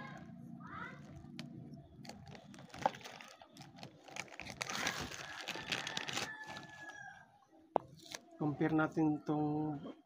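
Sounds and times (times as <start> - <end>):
plastic packaging crinkling: 1.0 - 7.0.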